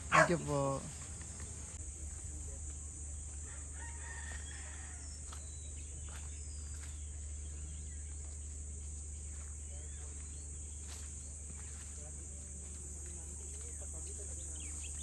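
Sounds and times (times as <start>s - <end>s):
insects droning: 0.0s - 15.0s
rooster crowing faintly: 3.4s - 5.4s.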